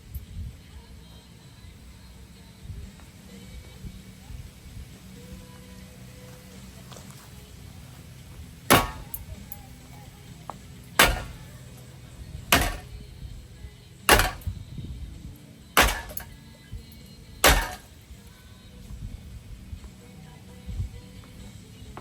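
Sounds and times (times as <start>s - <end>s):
ceiling fan being smashed: 8.7s - 9.4s, 11.0s - 11.6s, 12.5s - 13.0s, 14.1s - 14.5s, 15.8s - 16.4s, 17.4s - 18.0s.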